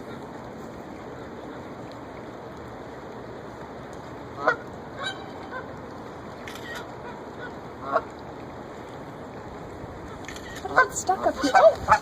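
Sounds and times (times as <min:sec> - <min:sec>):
geese honking: 0:04.4 - 0:05.6.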